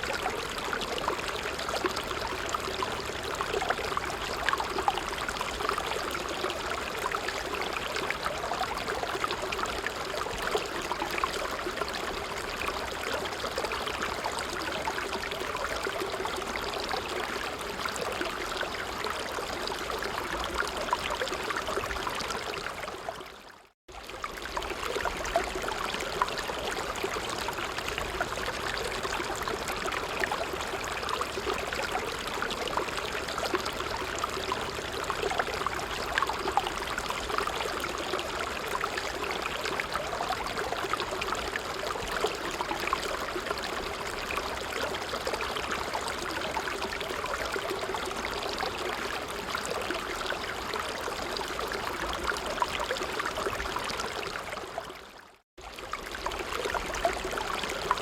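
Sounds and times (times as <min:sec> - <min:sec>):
stream babbling: 0:24.0 - 0:55.0.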